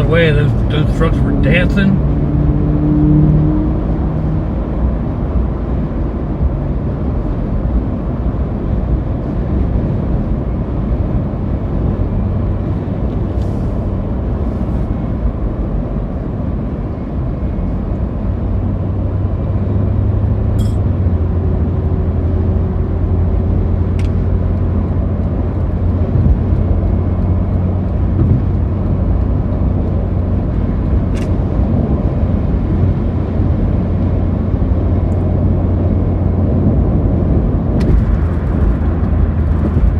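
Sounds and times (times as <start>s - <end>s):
vehicle road and engine rumble: 0.0s - 39.9s
low hum: 18.3s - 39.9s.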